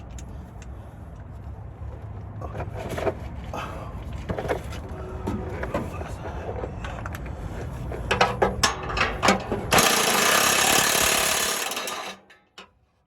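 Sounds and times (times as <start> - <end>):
ratchet clicks and knocks: 8.1 - 12.7.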